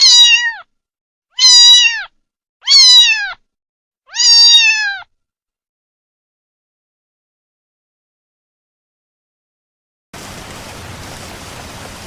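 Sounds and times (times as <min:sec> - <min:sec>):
cat meowing: 0:00.0 - 0:00.7, 0:01.3 - 0:03.5, 0:04.1 - 0:05.1.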